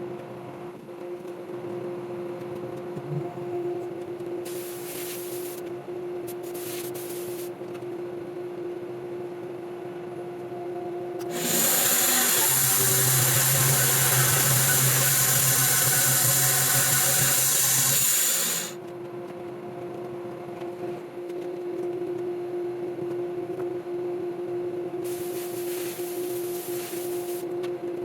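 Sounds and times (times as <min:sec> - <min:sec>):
saw blade cutting log: 0:11.3 - 0:18.8
sawmill humming: 0:11.3 - 0:18.8.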